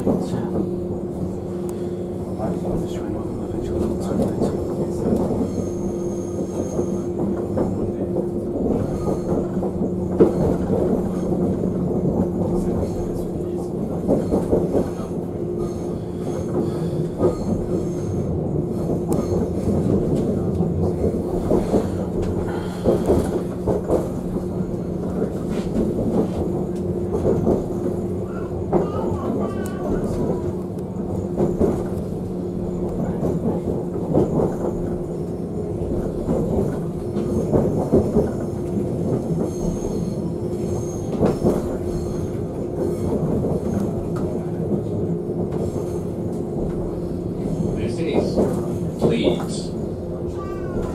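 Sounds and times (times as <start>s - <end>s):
train rumble and low hum: 0.0s - 50.9s.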